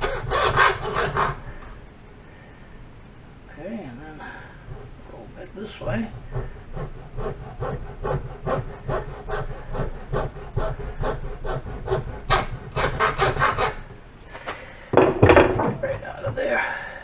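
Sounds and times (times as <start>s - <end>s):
hand saw cutting rubber hose: 0.0s - 1.8s, 4.6s - 14.0s.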